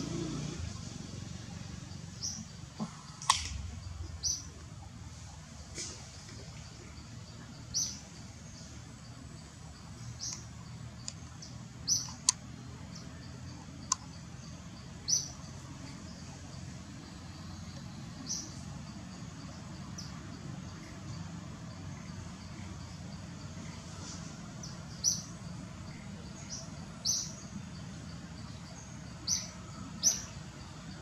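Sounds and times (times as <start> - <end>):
bird chirping: 0.0 - 31.0
low forest rumble: 0.0 - 31.0
sharp clicks: 3.2 - 3.6, 12.0 - 12.4.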